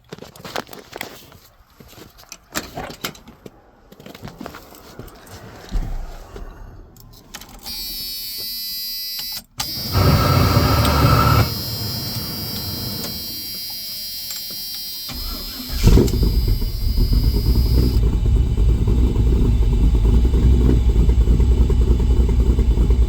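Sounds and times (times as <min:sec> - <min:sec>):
high-pitched whine: 0:07.7 - 0:20.3
engine cranking: 0:09.6 - 0:23.0
engine running: 0:09.6 - 0:23.0.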